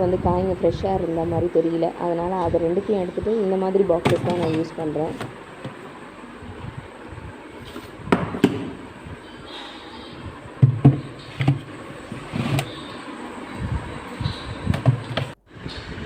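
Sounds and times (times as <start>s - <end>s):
plastic boxes knocking and clicking: 10.6s - 11.7s.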